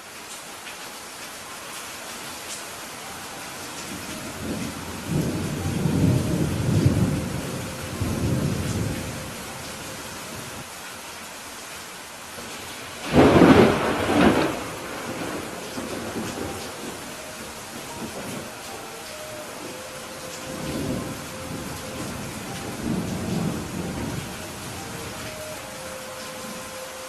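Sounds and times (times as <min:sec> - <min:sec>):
steady rain: 0:00.0 - 0:27.0
thunder rumbling: 0:03.9 - 0:10.6, 0:12.5 - 0:25.9
sharp thunderclap: 0:13.0 - 0:16.9.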